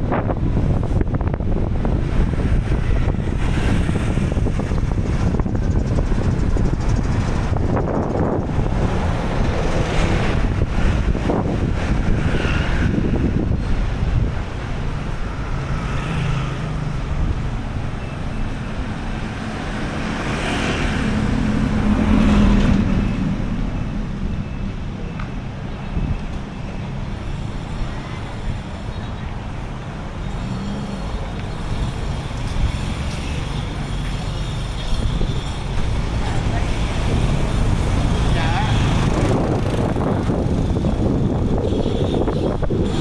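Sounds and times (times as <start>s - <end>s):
street traffic: 0.0s - 43.0s
wind rumble on microphone: 0.0s - 43.0s
motor vehicle passing: 35.4s - 43.0s.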